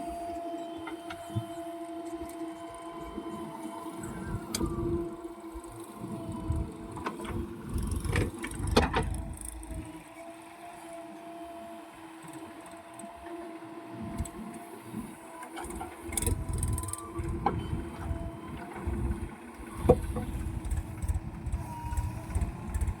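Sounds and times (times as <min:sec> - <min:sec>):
heavy machine engine rumbling: 0:00.1 - 0:10.2, 0:16.3 - 0:23.0.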